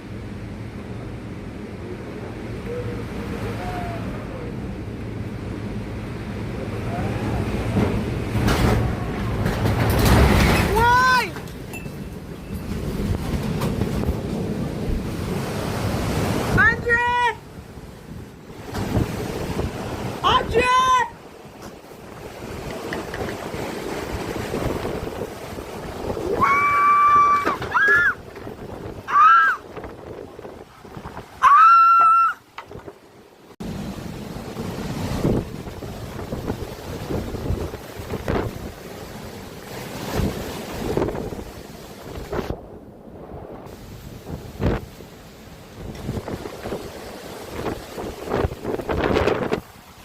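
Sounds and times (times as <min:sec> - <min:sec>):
faint wind whistles: 0:00.0 - 0:50.0
wind buffeting microphone: 0:00.0 - 0:50.0
high-pitched cries: 0:26.3 - 0:28.2, 0:31.4 - 0:32.4.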